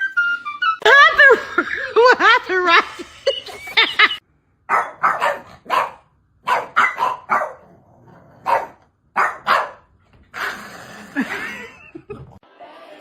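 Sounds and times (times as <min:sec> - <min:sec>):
dog barking: 0:04.7 - 0:07.7, 0:08.4 - 0:09.9.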